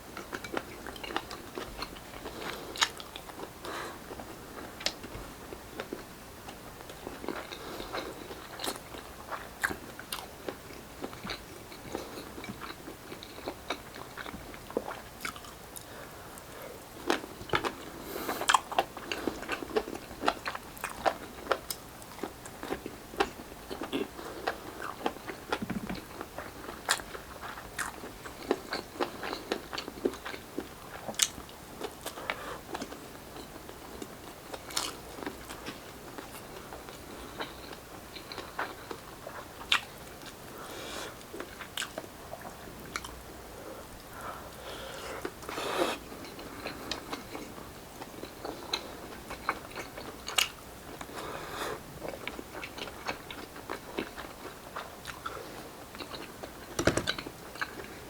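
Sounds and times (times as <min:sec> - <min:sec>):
person crunching and chewing: 0:00.2 - 0:03.5, 0:06.9 - 0:15.9, 0:17.0 - 0:43.2, 0:52.0 - 0:57.9.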